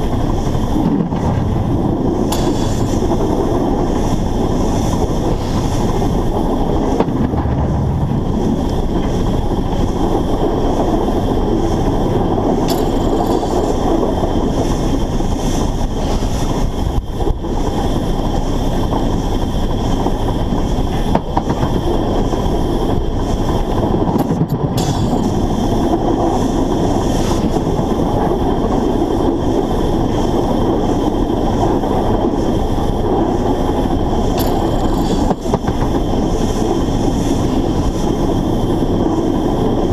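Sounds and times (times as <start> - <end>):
steam locomotive running gear rumble: 0.0 - 39.9
sharp clicks from track: 2.3 - 3.0.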